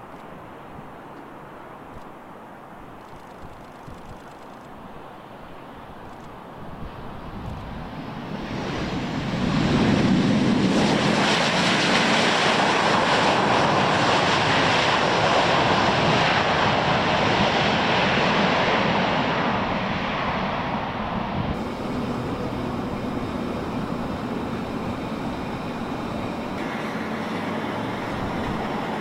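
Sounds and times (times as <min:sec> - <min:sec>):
jet engines running loud: 0:06.9 - 0:29.0.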